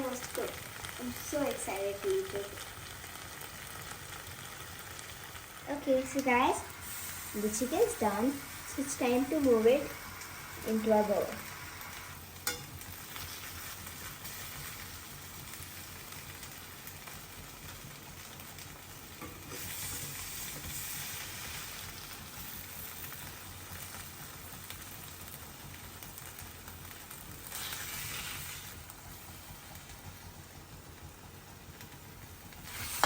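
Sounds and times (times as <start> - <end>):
chicken sizzling in oil: 0.0 - 33.0.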